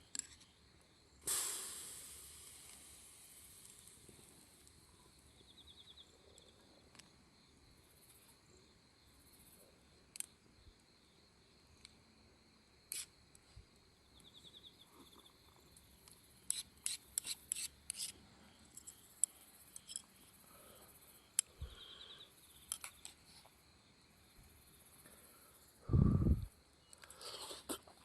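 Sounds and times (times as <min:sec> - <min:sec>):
sharp clicks and pops: 0:10.1 - 0:10.4, 0:22.6 - 0:23.2.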